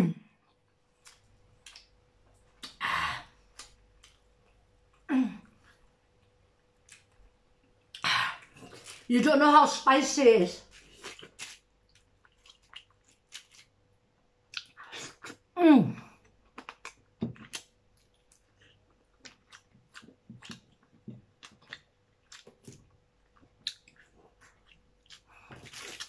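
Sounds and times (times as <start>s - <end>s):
wet chewing and smacking: 0.5s - 2.8s, 10.8s - 13.8s, 14.4s - 15.5s, 16.2s - 26.0s.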